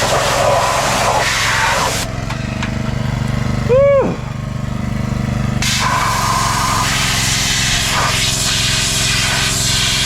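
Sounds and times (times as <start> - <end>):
pressure washer engine running: 0.0 - 10.0
water jet spray hissing: 5.6 - 10.0.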